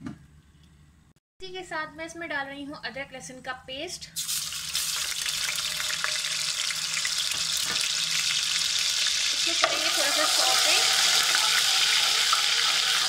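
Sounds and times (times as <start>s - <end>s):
paste sizzling in hot oil: 4.2s - 13.0s.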